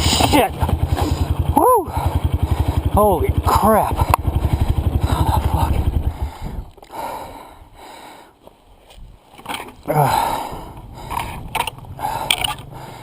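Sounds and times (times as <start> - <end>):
person breathing hard: 0.9 - 3.0, 4.2 - 8.4, 9.9 - 13.0.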